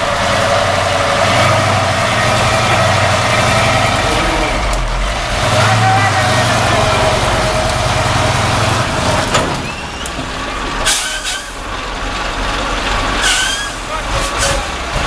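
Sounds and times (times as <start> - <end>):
truck engine running: 0.0 - 15.0
air hiss with squeal: 10.8 - 11.6, 13.2 - 13.8.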